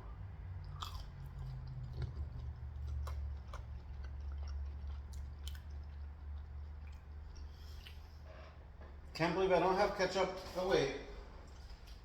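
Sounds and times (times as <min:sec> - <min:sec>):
person chewing food: 0:00.5 - 0:08.3
wet mouth clicks: 0:00.7 - 0:08.1.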